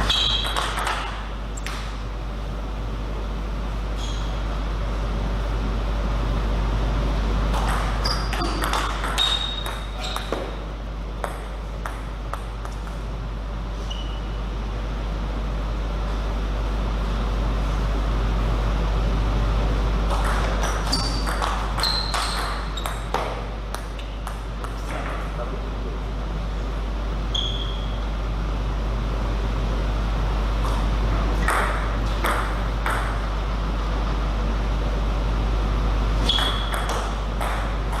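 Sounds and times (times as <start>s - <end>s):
table tennis ball hits: 0.0s - 1.9s, 7.5s - 10.6s, 11.2s - 13.0s, 20.1s - 25.3s, 31.4s - 33.3s, 36.3s - 38.0s
steady low hum: 0.0s - 38.0s.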